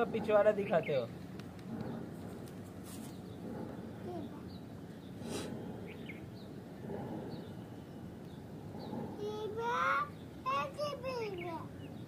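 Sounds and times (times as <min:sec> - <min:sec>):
outdoor background noise: 0:00.0 - 0:12.0
small birds chirping: 0:00.0 - 0:12.0
brief rustle: 0:02.4 - 0:03.2.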